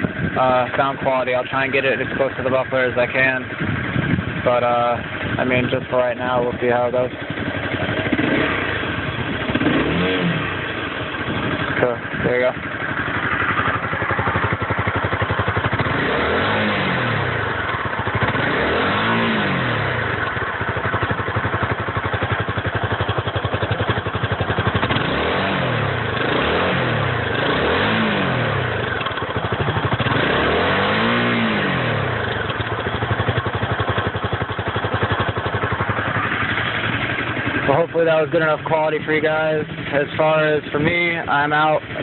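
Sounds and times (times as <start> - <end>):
engine throttle blips: 0.0 - 22.2
motorcycle engine idling: 0.0 - 42.0.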